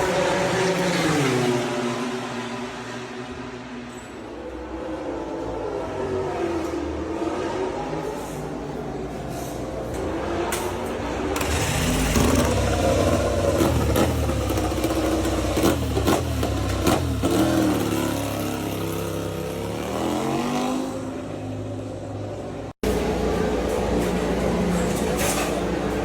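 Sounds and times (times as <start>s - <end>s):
racing motorcycle engines revving: 10.2s - 22.0s.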